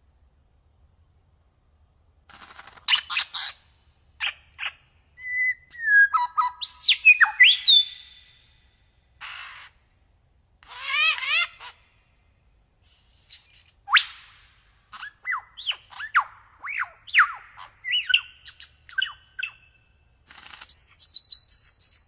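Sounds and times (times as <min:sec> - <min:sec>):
songbird singing: 0:04.2 - 0:10.1, 0:12.8 - 0:22.0.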